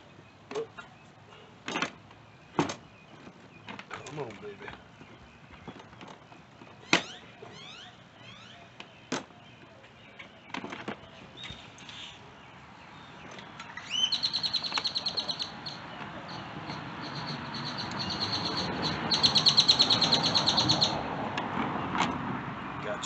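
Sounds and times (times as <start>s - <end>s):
bird trilling: 6.7s - 10.4s, 12.9s - 21.1s.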